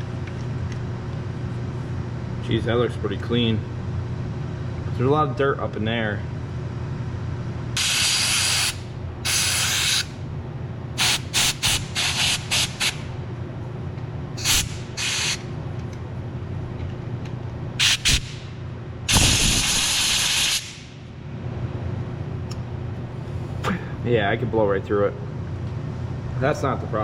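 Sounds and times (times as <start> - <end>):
steady low hum: 0.0 - 27.0
compressed air blow gun blasts: 7.8 - 10.1, 11.0 - 13.1, 14.4 - 15.5, 17.8 - 18.5, 19.1 - 20.9.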